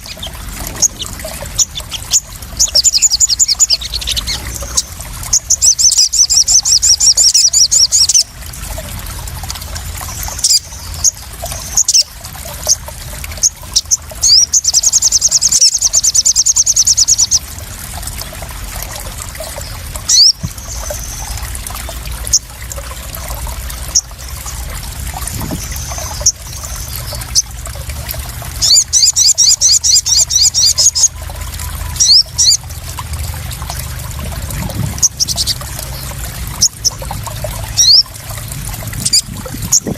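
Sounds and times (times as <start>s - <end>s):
bird trilling chirps: 0.0s - 8.3s, 19.6s - 21.4s
water splashing and trickling: 0.0s - 39.9s.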